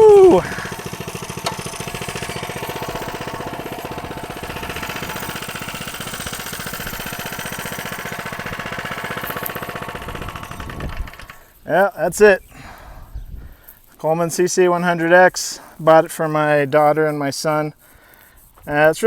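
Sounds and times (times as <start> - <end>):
small engine puttering: 0.0 - 11.8.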